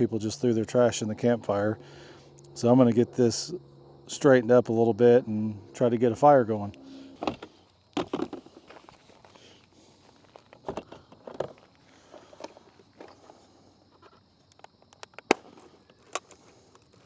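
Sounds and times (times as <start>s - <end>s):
rustling of trash: 7.2s - 14.2s.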